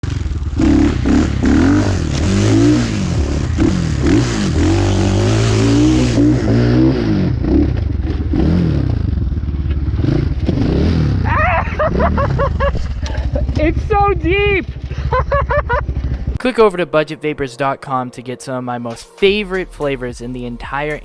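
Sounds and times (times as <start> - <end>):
dirt bike engine revving: 0.0 - 16.4.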